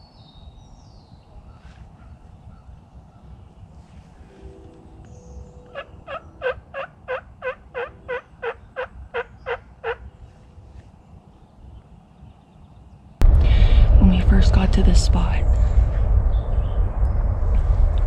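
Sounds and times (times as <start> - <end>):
turkey yelps: 5.7 - 10.1.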